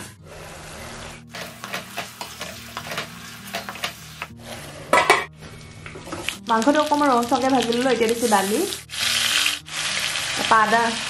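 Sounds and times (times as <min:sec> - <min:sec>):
metal lid clanking on pan: 0:04.9 - 0:05.3
chicken sizzling in a pan: 0:06.2 - 0:11.0.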